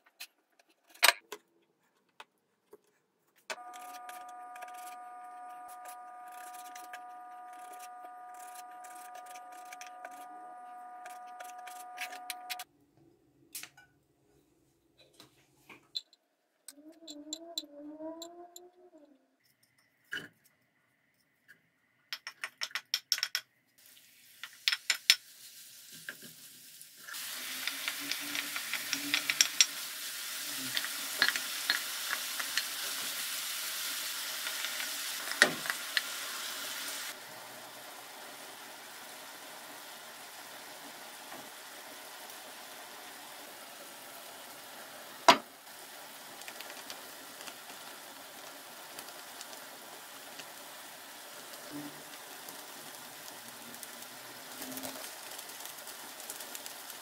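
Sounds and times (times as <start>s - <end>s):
utensil stirring in a pan: 23.8s - 37.1s
food sizzling in a frying pan: 23.8s - 57.0s.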